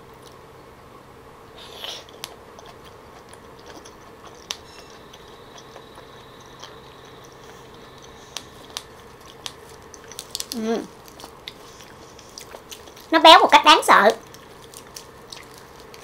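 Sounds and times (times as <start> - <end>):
low room hum: 0.0 - 16.0
wet chewing clicks: 1.8 - 16.0.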